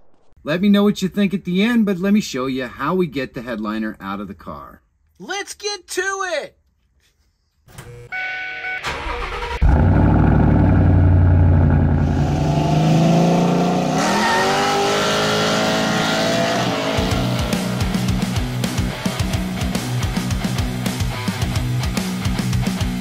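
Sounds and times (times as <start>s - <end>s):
car engine revving: 8.9s - 20.1s
rock music with drum beat: 16.7s - 23.0s.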